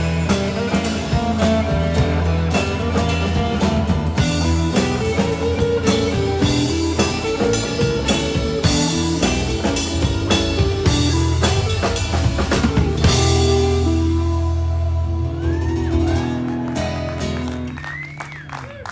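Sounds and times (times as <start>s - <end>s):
drum kit beat: 0.0s - 15.1s
bass guitar: 0.0s - 18.9s
electric guitar: 0.0s - 18.9s.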